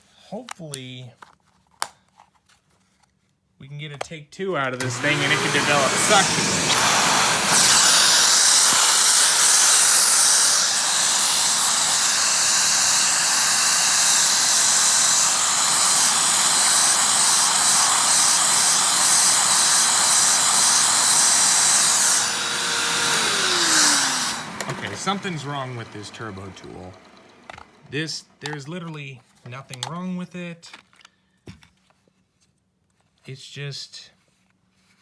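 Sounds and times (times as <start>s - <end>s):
vacuum cleaner air rushing: 4.8s - 28.6s
vacuum motor humming: 4.8s - 28.9s.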